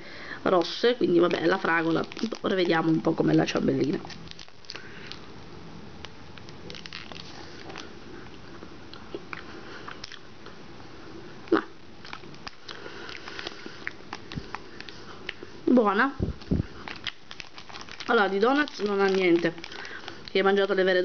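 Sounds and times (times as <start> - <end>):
plastic wrapper crinkling: 0.5 - 5.3, 6.0 - 8.4, 12.0 - 21.0.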